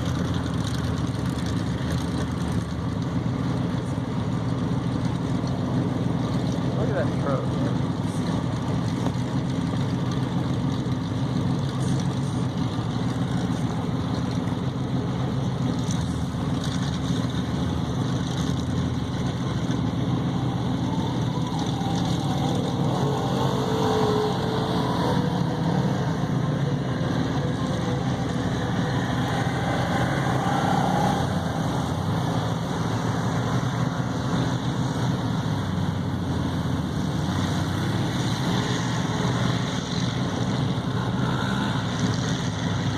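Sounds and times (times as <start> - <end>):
truck engines running: 0.0 - 42.9.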